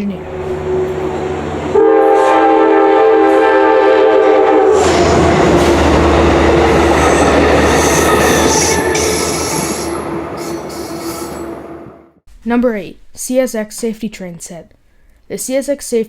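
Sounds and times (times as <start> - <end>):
train wheels rumbling on rails: 0.0 - 12.0
train horn chord: 0.0 - 12.2.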